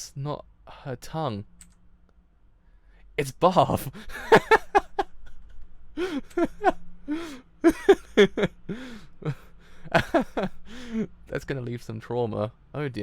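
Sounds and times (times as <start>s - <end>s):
man making wordless cries: 3.2s - 4.8s.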